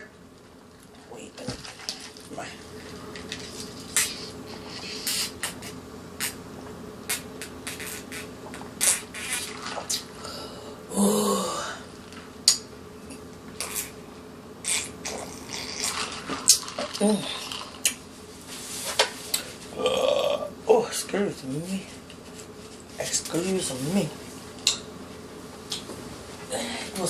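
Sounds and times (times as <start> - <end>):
person gulping a drink: 14.6 - 18.0.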